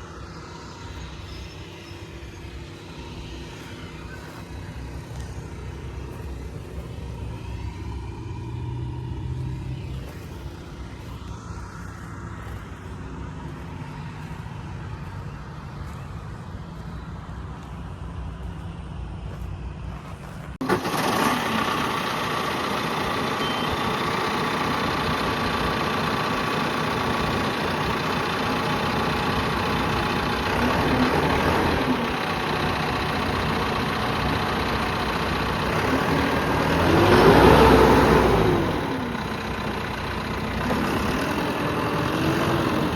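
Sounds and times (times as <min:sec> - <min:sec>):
engine revving: 0:00.0 - 0:17.0, 0:19.3 - 0:42.9
tractor diesel engine idling: 0:00.0 - 0:42.9.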